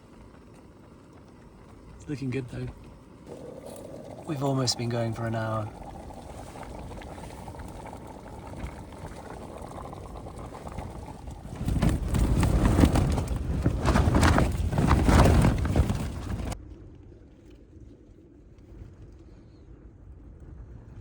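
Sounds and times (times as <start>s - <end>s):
tent fabric flapping in wind: 0.0s - 21.0s
steady wind rush: 2.1s - 16.6s.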